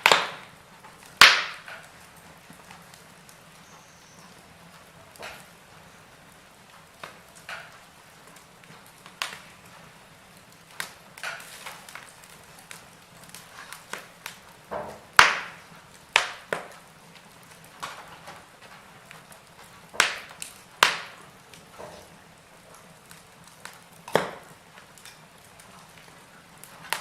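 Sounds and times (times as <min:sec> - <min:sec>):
faint steady hiss: 0:00.0 - 0:27.0
wood fire crackling and popping: 0:00.0 - 0:27.0.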